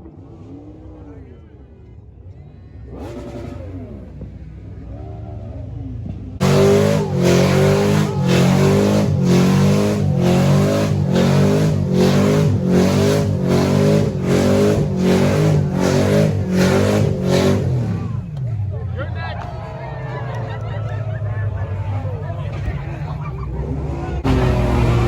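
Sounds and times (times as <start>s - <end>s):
car engine revving hard: 2.9s - 4.2s, 6.4s - 18.3s, 24.0s - 25.0s.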